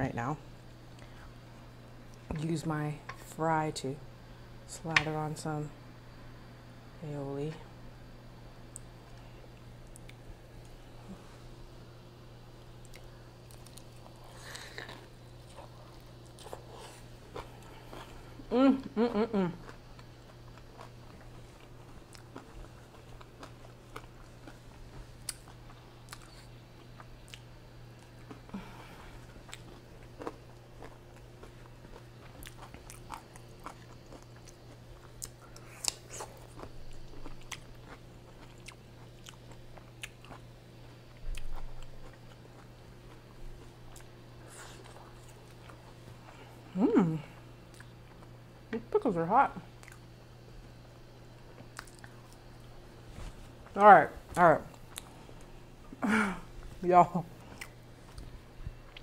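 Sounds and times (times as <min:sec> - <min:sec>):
steady low hum: 0:00.0 - 0:59.0
person chewing french fries: 0:12.7 - 0:46.4, 0:47.6 - 0:48.4, 0:49.8 - 0:55.6, 0:57.4 - 0:59.0.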